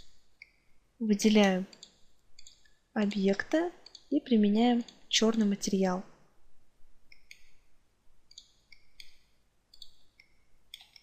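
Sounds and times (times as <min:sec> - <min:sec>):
computer mouse clicking: 0:01.7 - 0:02.8, 0:03.8 - 0:04.1, 0:04.8 - 0:05.1, 0:08.3 - 0:11.0.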